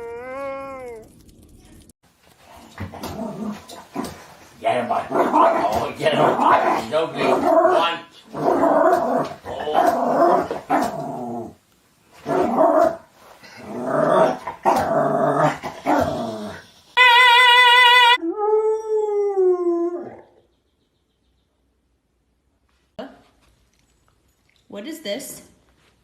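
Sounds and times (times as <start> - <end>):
dog growling and yipping: 0.0 - 1.4, 2.7 - 4.3, 5.1 - 11.6, 12.2 - 16.7.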